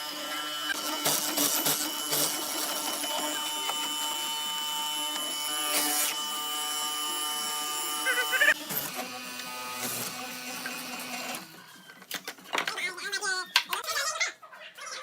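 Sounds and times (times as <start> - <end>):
power tool whining: 0.0 - 12.5.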